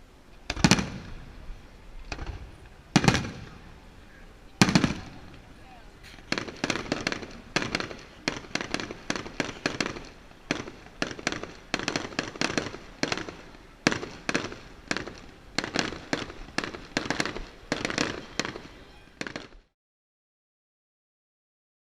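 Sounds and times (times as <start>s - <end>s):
fireworks cracking and banging: 0.4s - 3.8s, 4.6s - 19.7s.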